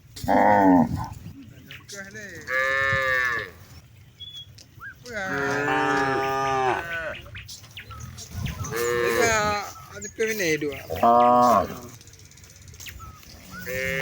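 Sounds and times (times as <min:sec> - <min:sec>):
cattle mooing: 0:05.2 - 0:07.3, 0:08.6 - 0:09.5.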